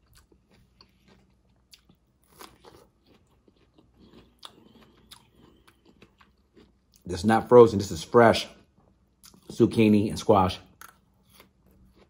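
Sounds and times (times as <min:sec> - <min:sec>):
close-up chewing: 0:00.0 - 0:07.1, 0:10.8 - 0:12.0.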